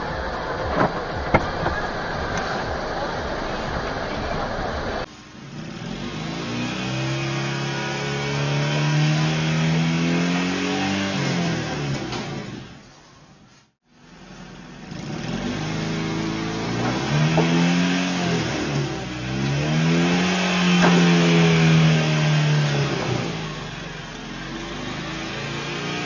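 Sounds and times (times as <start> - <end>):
steady rushing noise: 0.0 - 7.3
car engine accelerating: 0.0 - 26.0.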